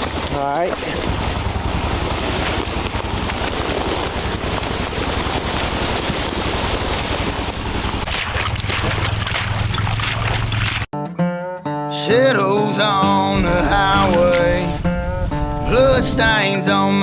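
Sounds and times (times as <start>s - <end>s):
boat motor running: 0.0s - 10.9s, 13.4s - 16.5s
wind on microphone: 13.4s - 16.4s.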